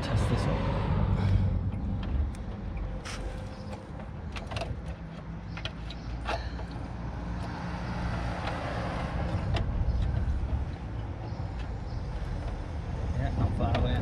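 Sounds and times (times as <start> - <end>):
steady low rumble: 0.0 - 5.0, 8.9 - 14.0
sharp metallic clicks and knocks: 1.7 - 7.6.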